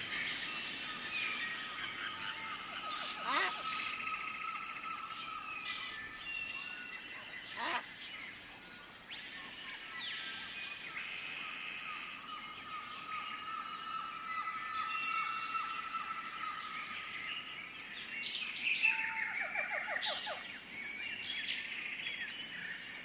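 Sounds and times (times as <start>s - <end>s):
birds chirping: 0.0s - 11.4s.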